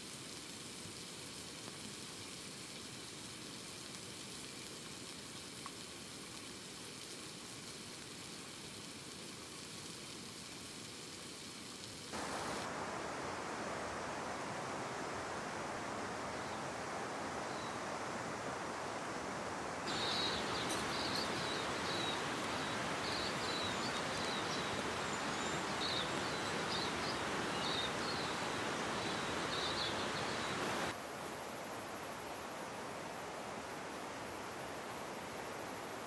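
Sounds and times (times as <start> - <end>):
rain: 0.0 - 36.0
river water rushing: 12.1 - 36.0
high bird chirps: 19.9 - 24.8.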